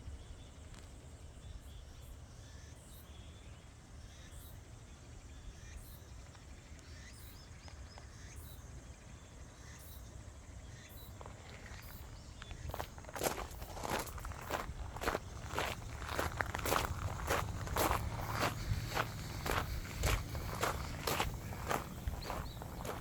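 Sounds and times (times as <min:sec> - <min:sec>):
high insect chirp: 0:04.0 - 0:23.0
small bird chirps: 0:10.8 - 0:23.0
wind rumble on microphone: 0:14.1 - 0:23.0.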